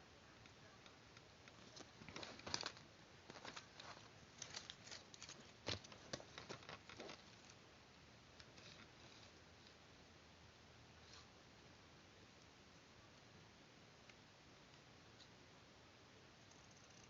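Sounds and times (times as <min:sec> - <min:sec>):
paper rustling: 0:01.5 - 0:07.6.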